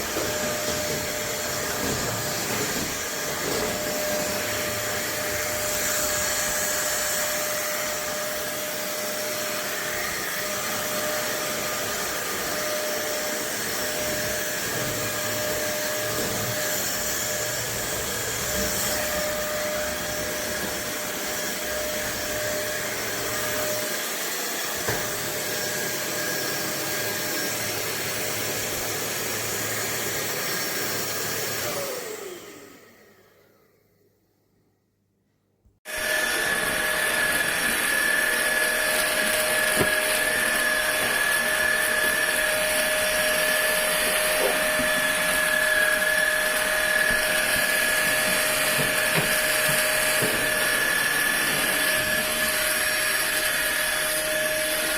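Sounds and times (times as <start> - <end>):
stick vacuum whining: 0.0 - 33.6, 35.9 - 54.9.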